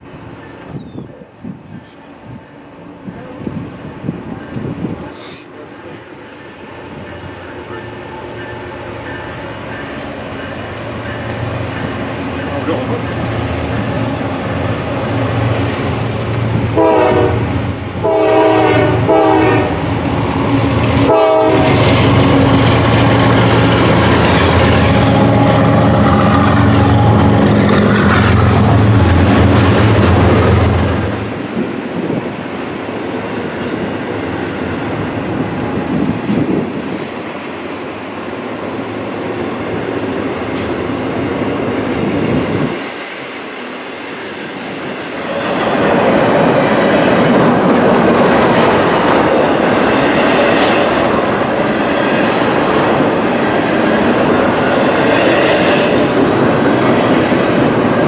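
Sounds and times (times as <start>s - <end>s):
diesel locomotive engines running: 0.0s - 58.0s
train wheels clattering on rail: 7.0s - 37.6s, 38.4s - 58.0s
locomotive horn blasts: 16.7s - 19.8s, 21.0s - 22.0s, 24.9s - 27.5s.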